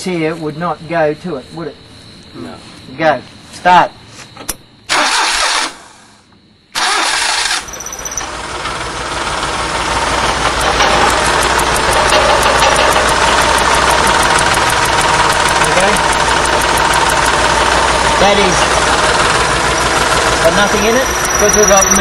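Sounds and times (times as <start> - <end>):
car starter cranking: 4.9 - 6.0, 6.8 - 22.0
car engine running: 7.6 - 22.0
fast faint ticking: 10.2 - 22.0.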